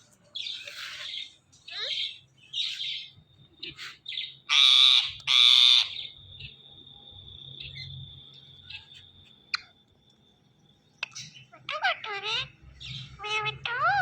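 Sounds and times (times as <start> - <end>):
parrot chirping: 0.4 - 6.3, 11.0 - 14.0
parrot squawking: 4.5 - 6.0, 11.1 - 14.0.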